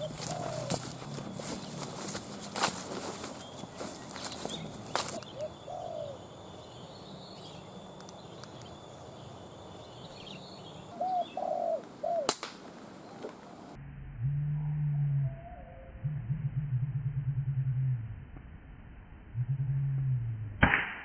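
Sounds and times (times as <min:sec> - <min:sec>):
doves cooing: 0:00.0 - 0:13.8
sharp crack: 0:12.2 - 0:13.5, 0:20.6 - 0:21.0
low steady hum: 0:12.8 - 0:20.6.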